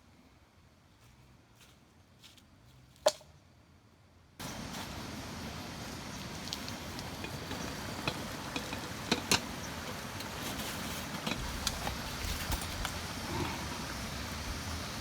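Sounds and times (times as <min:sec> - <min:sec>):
steady rain falling: 0:04.4 - 0:15.0
drops ticking: 0:06.2 - 0:10.4.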